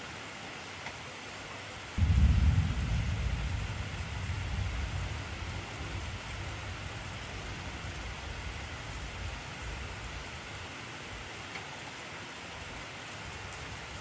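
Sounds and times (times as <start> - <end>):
heavy rain hissing: 1.8 - 14.0
deep thunder rumble: 2.0 - 10.7.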